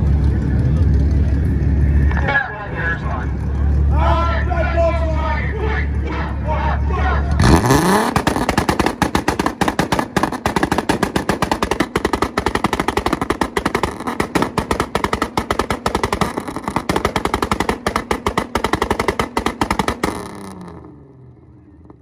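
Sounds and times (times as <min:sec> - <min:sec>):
exhaust firing rapid loud bangs: 0:07.4 - 0:20.9.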